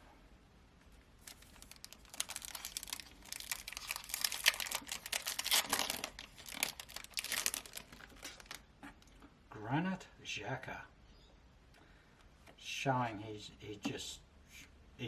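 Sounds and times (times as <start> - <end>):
plastic wrapper tearing and crinkling: 1.2 - 8.7.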